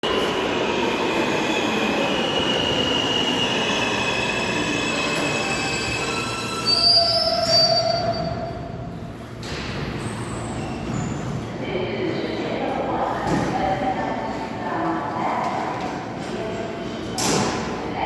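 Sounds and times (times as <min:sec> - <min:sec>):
subway wheels squealing: 0:00.1 - 0:08.8, 0:09.8 - 0:11.6
sharp high squeal: 0:02.2 - 0:08.5.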